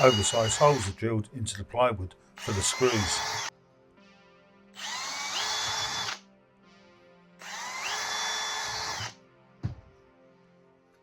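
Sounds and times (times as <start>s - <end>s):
power drill whining: 0.0s - 1.0s, 2.4s - 3.5s, 4.8s - 6.2s, 7.4s - 9.2s.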